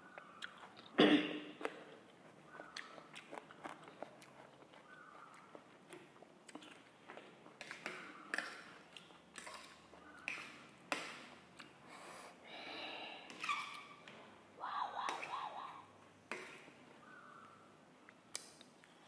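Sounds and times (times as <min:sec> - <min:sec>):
wet chewing and biting: 0:01.6 - 0:10.5.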